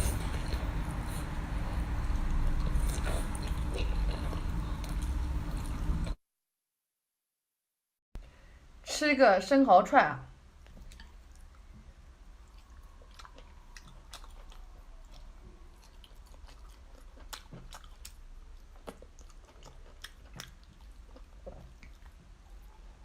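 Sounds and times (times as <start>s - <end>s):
chewing and biting food: 0.0s - 6.2s, 12.4s - 22.7s.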